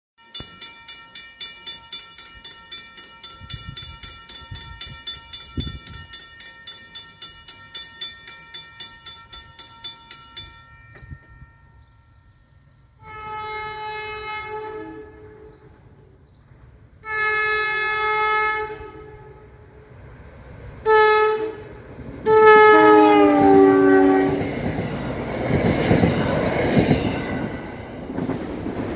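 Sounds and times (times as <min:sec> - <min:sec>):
crossing warning bell ringing: 0:00.2 - 0:13.4
train horn blasts: 0:12.9 - 0:16.1, 0:17.0 - 0:19.8, 0:20.8 - 0:24.6
train rushing past: 0:13.0 - 0:28.9.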